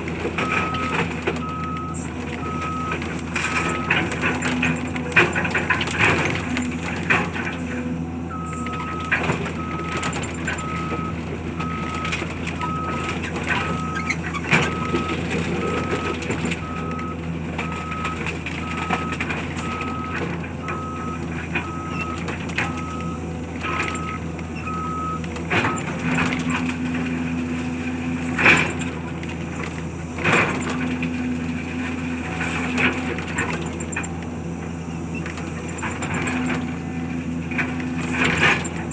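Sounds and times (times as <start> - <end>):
heavy diesel machine running: 0.0 - 38.9
reversing alarm beeping: 0.4 - 6.6, 7.6 - 26.6.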